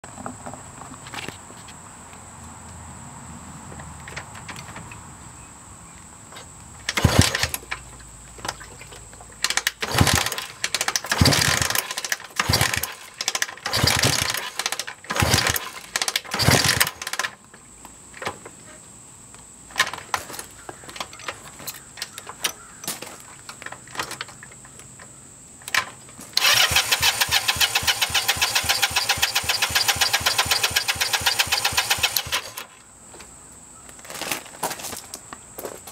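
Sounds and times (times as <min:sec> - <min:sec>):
motorcycle engine cranking: 0:06.8 - 0:07.8, 0:09.4 - 0:17.4, 0:25.7 - 0:32.8.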